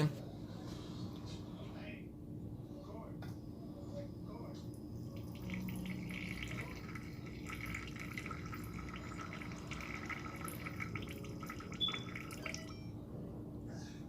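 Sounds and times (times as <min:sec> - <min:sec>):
water trickling into a cup: 0:05.1 - 0:12.9.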